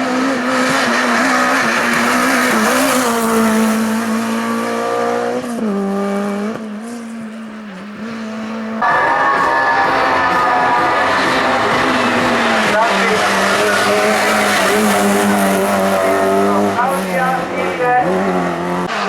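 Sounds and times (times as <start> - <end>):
race car engine at high revs: 0.0 - 19.0.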